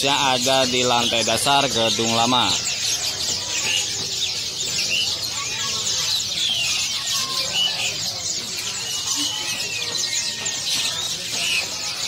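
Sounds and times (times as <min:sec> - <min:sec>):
small birds chirping and twittering: 0:00.0 - 0:12.0.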